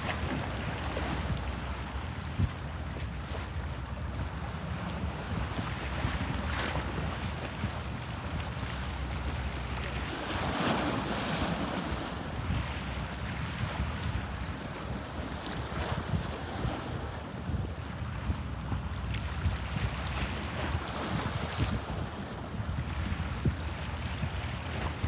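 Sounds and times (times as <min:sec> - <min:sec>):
wind on microphone: 0:00.0 - 0:25.0
sea waves splashing: 0:05.8 - 0:17.3.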